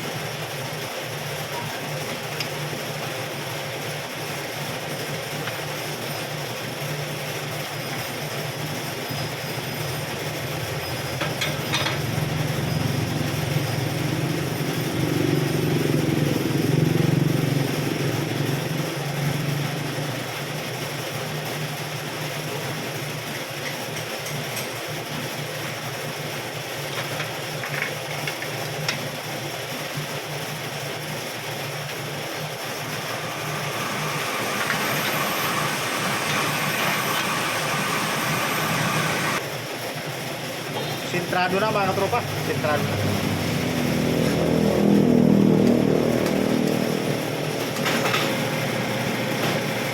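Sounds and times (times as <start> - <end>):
metal lathe motor hum: 0.1 - 21.4, 30.2 - 40.1, 41.2 - 49.9
metal cutting hiss: 32.8 - 39.4.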